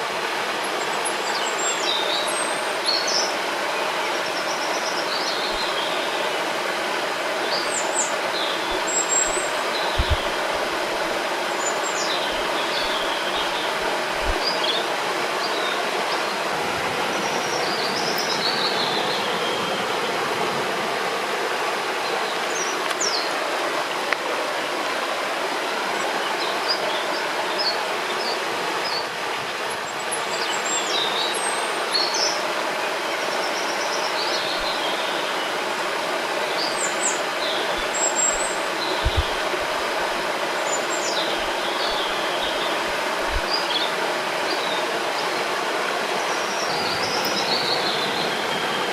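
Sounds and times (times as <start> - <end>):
river water flowing: 0.0 - 48.9
birds chirping and singing: 7.5 - 15.8, 36.6 - 44.8.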